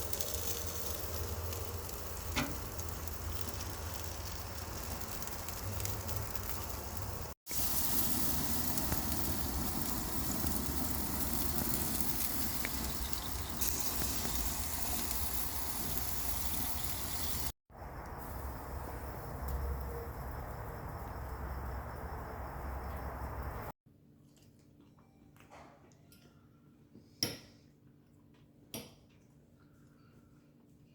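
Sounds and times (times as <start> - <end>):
food sizzling: 0.0 - 17.6.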